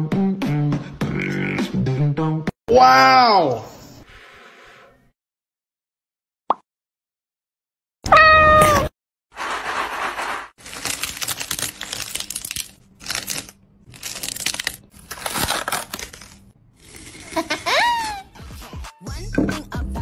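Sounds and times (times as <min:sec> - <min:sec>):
crunching crackling handling noise: 0:09.4 - 0:16.6.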